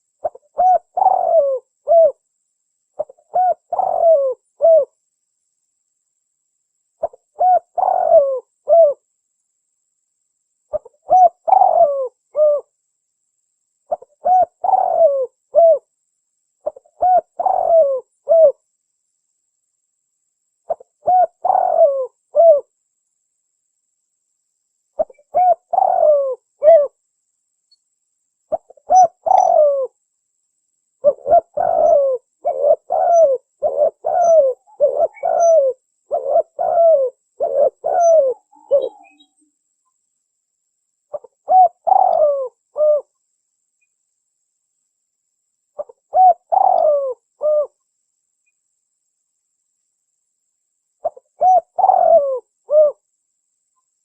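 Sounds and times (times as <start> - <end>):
dove cooing: 0.0 - 2.2, 3.0 - 5.0, 7.0 - 9.0, 10.7 - 12.7, 13.9 - 15.9, 16.6 - 18.6, 20.7 - 22.7, 25.0 - 27.0, 28.5 - 30.0, 31.0 - 39.4, 41.1 - 43.1, 45.8 - 47.8, 51.0 - 53.0.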